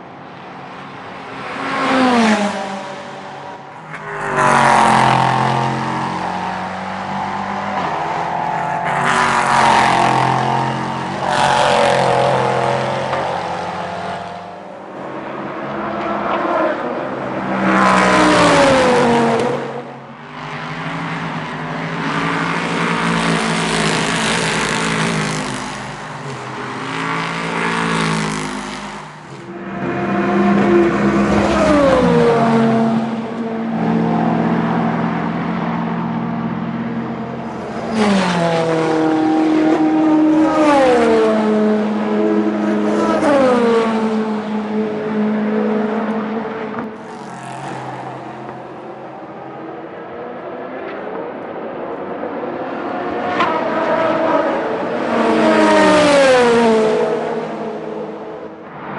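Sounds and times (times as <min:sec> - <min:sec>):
race car engines at full throttle: 0:00.0 - 0:58.9.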